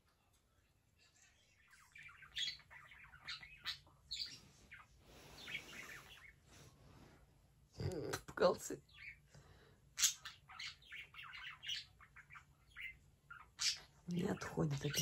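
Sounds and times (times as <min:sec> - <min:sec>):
parrot chirping and squawking: 0:01.7 - 0:06.4, 0:08.8 - 0:09.3, 0:09.9 - 0:15.0.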